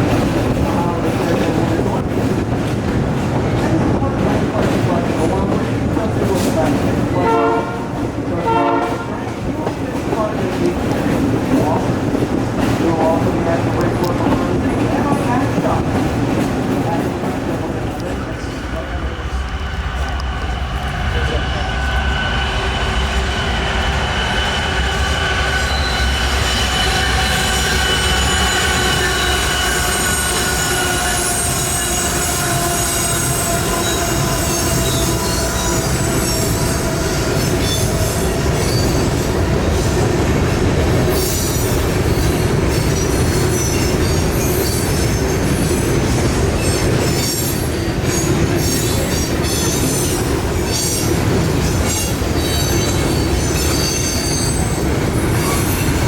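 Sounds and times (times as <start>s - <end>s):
train wheel squeal: 19.3s - 40.0s, 41.1s - 56.0s.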